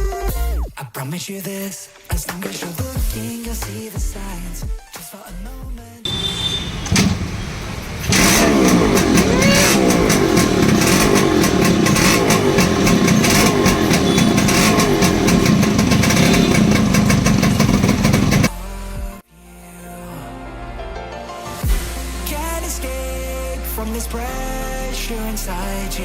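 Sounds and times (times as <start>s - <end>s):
motorcycle two-stroke engine revving: 6.1s - 18.5s.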